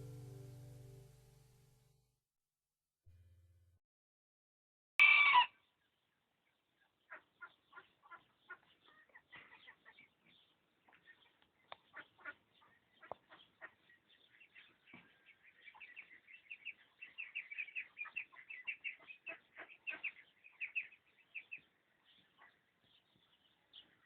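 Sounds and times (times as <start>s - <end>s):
birds chirping: 6.6s - 24.0s.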